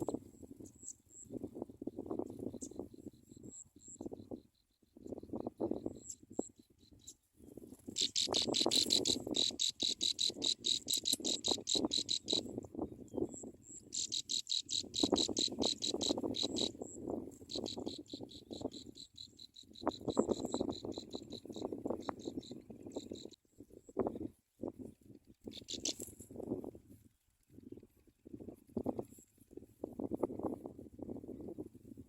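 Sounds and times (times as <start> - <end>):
cricket chirping: 0.0 - 23.4, 25.5 - 26.3.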